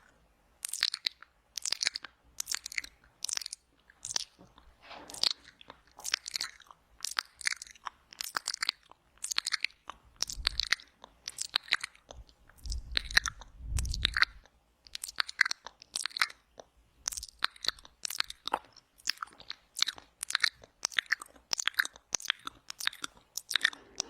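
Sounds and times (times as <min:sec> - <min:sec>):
wet mouth clicks and smacks: 0:00.6 - 0:24.0.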